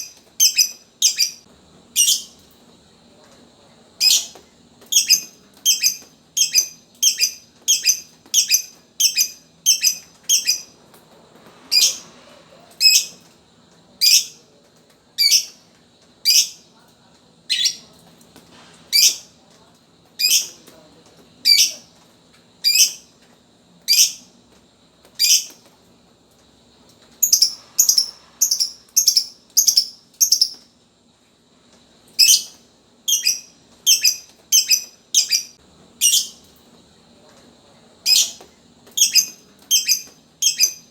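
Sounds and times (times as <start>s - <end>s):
bird chirping: 0.0s - 1.4s, 4.9s - 10.7s, 27.2s - 30.6s, 32.2s - 36.4s, 39.0s - 40.9s.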